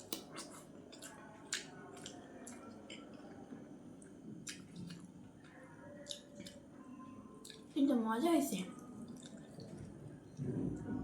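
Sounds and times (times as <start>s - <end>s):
wet chewing: 0.0s - 3.1s, 4.4s - 6.6s, 9.1s - 9.9s.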